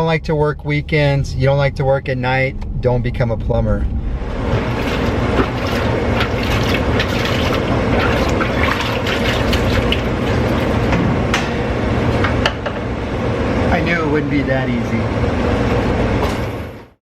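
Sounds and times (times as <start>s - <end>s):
low hum: 0.0s - 16.9s
water running and splashing: 4.5s - 10.9s.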